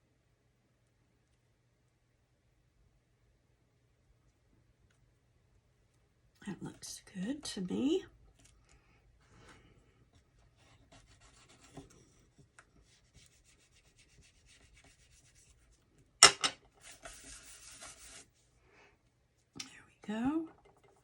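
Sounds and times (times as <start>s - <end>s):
paper rubbed by hand: 12.8s - 15.7s, 16.8s - 18.4s.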